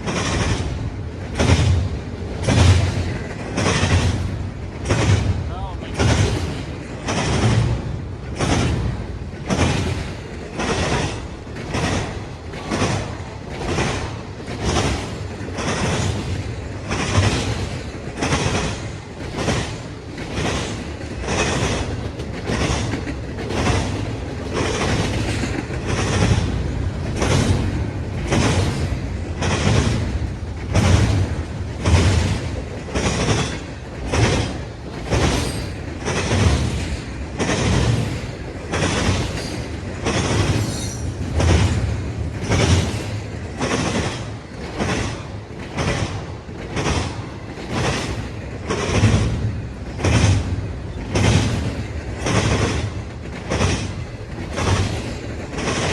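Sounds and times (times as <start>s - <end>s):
train rumble: 0.0s - 55.9s
train wheels clacking: 0.0s - 55.9s.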